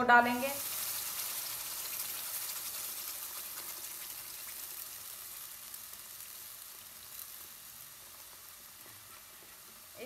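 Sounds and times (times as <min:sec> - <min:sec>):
paste sizzling in hot oil: 0:00.0 - 0:10.0.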